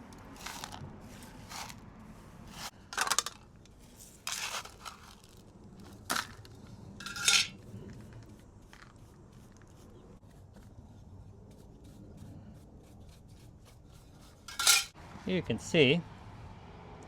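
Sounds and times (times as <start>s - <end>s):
metallic clinks and scrapes: 7.0s - 8.1s, 14.4s - 15.0s.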